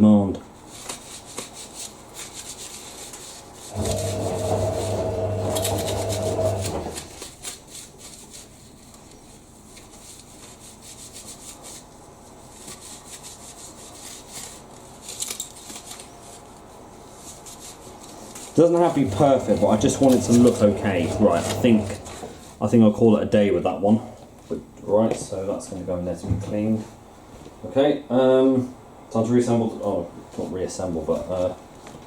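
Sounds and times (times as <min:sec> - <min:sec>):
cloth rubbing on panel: 0:00.6 - 0:15.1, 0:16.0 - 0:22.6
steady hum: 0:03.6 - 0:07.2, 0:18.3 - 0:22.9.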